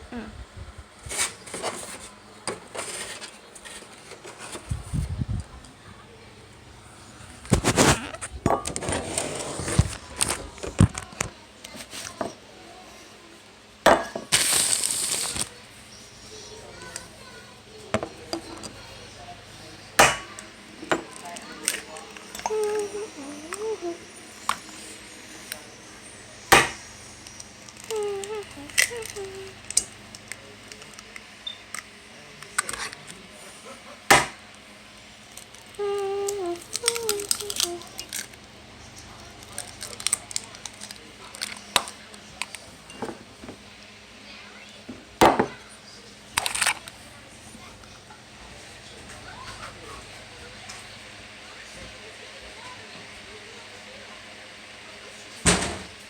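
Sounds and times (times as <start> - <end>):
dishes and pans clinking: 13.9 - 14.3.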